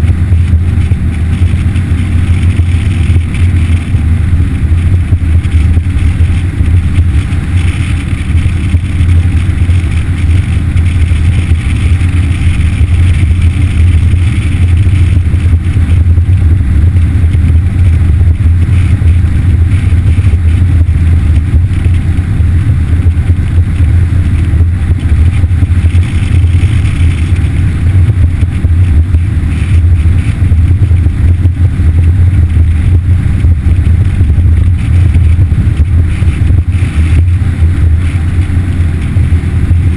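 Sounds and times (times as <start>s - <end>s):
outboard motor droning: 0.0s - 39.9s.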